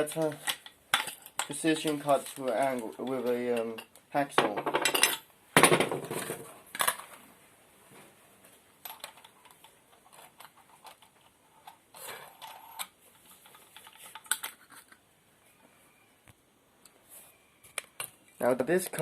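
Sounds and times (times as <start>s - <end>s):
metal tools clinking: 0.0s - 4.0s, 4.8s - 5.3s.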